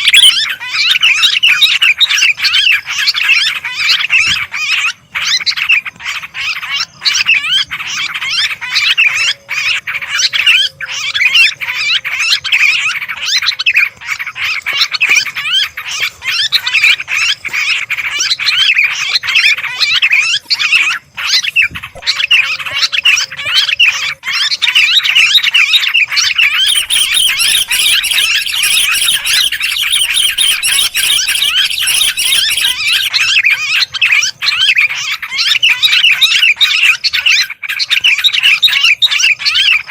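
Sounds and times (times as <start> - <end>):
higher thinner bird calls: 0.0 - 36.1
bulbuls chattering: 26.2 - 33.4.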